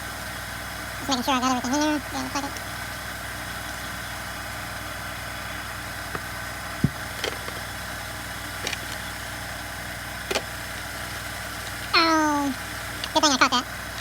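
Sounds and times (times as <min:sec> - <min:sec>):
steady low hum: 0:00.0 - 0:14.0
dull knock: 0:06.8 - 0:07.4
small metal parts clicking: 0:08.6 - 0:09.1.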